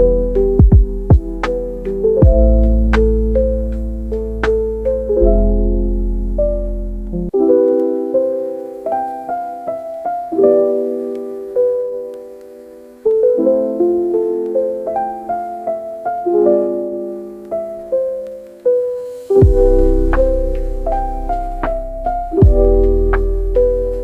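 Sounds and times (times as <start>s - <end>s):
solo piano slow melody: 0.0s - 24.0s.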